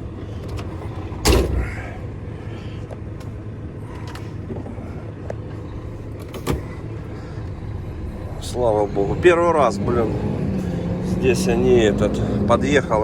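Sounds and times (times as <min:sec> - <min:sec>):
diesel truck engine idling: 0:00.0 - 0:13.0
loud thump: 0:01.2 - 0:01.9.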